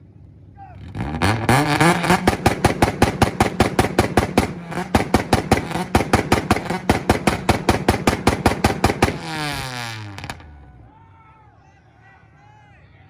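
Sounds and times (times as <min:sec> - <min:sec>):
car engine revving: 0:00.8 - 0:10.7
loud exhaust pops: 0:00.9 - 0:10.5.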